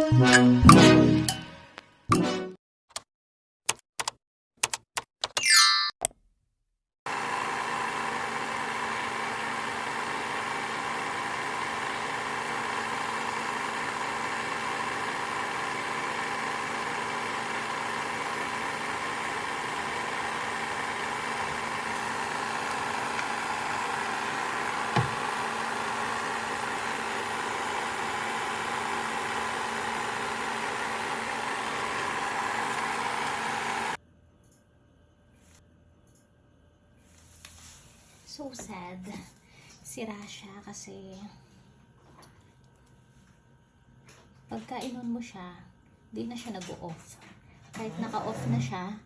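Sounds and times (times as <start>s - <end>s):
robot vacuum motor hum: 7.1s - 34.0s.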